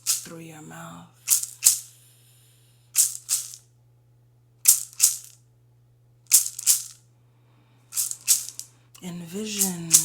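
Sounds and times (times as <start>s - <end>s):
hand rattle shaking: 0.0s - 0.3s, 1.2s - 2.0s, 3.0s - 3.6s, 4.7s - 5.4s, 6.3s - 7.0s, 7.9s - 8.7s, 9.5s - 10.0s
steady low hum: 0.0s - 10.0s.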